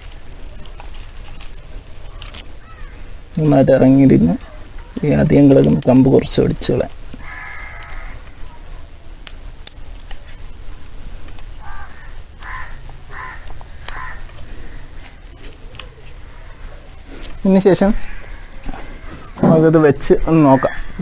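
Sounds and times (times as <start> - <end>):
crows cawing: 2.6 - 3.1, 7.2 - 8.4, 11.6 - 15.4, 17.9 - 19.5, 20.4 - 21.0
sharp clicks: 13.4 - 14.4.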